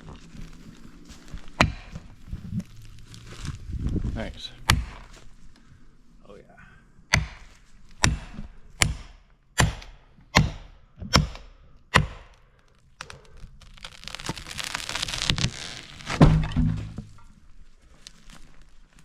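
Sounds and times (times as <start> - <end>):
axe striking wood: 1.6 - 2.0, 4.7 - 5.1, 7.1 - 12.4, 16.1 - 17.1
rushing crackling noise: 13.0 - 16.2.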